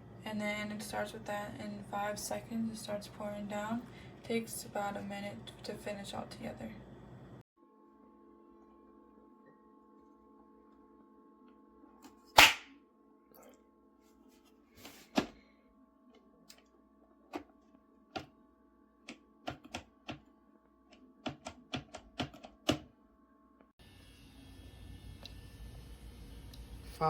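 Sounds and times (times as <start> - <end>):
coffee maker hum: 23.8 - 27.0.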